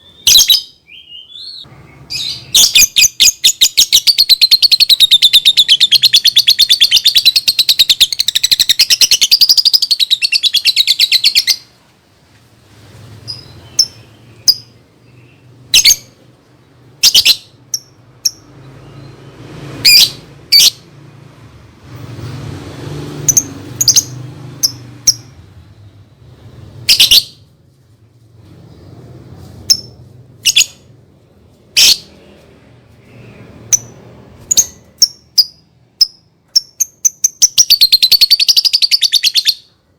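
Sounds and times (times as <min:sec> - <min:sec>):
sharp bird chirps: 0:00.0 - 0:11.7, 0:13.2 - 0:16.2, 0:17.0 - 0:20.9, 0:23.2 - 0:26.2, 0:26.8 - 0:27.5, 0:33.0 - 0:39.8
lovebird chattering trill: 0:00.3 - 0:11.7, 0:23.3 - 0:25.4, 0:33.7 - 0:39.7.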